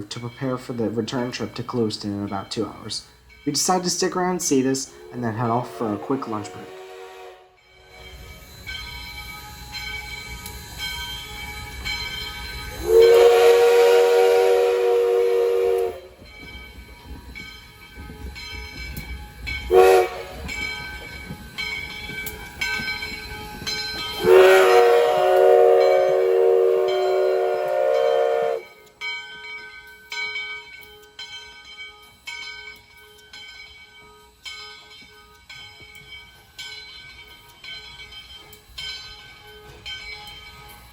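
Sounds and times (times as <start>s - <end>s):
steam locomotive whistle: 4.9s - 7.6s, 12.7s - 16.2s, 19.7s - 20.6s, 24.2s - 28.8s.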